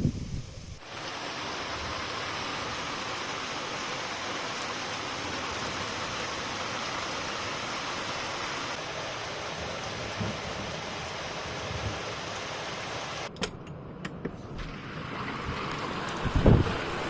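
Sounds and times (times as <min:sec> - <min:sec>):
steady rain falling: 0:00.6 - 0:13.3, 0:14.6 - 0:17.0.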